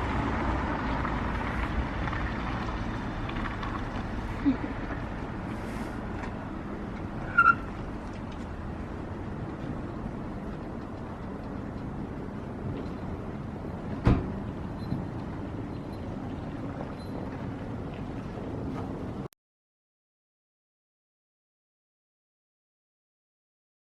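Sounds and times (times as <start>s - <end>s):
car road rumble from inside: 0.0s - 19.3s
short squeak: 7.3s - 7.7s.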